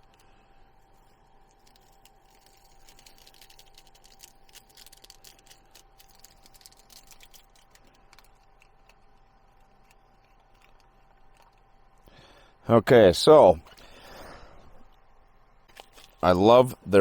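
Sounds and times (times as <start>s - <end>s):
small items clicking and rustling: 0.0s - 11.8s, 15.7s - 16.2s
faint steady hum: 0.0s - 17.0s.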